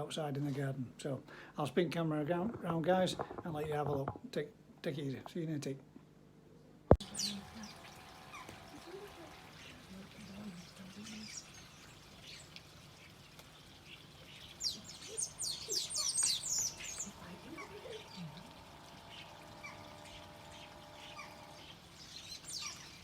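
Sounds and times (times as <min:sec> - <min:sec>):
garden birds chirping: 0:06.9 - 0:23.0.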